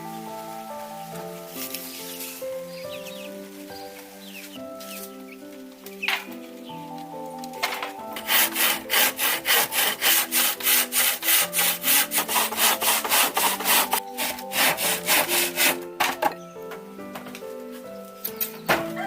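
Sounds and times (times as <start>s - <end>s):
background music: 0.0s - 19.0s
hand saw cutting wood: 8.1s - 15.9s.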